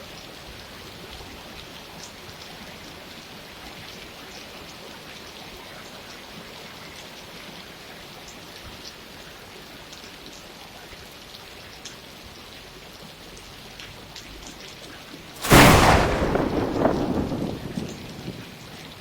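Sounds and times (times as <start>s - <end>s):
thunder clap: 15.4s - 18.8s
steady rain falling: 15.4s - 19.0s.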